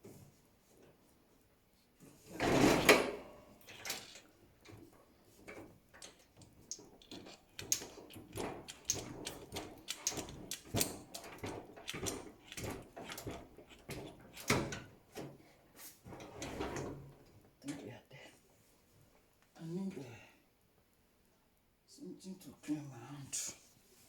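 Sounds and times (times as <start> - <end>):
hands handling parts clicking: 5.5 - 14.6.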